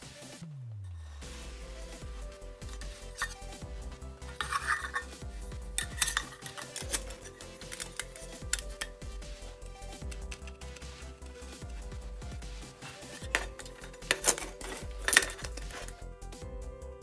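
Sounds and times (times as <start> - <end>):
metal pots clinking: 2.6 - 3.5, 4.2 - 5.2, 5.8 - 8.9, 12.8 - 15.9.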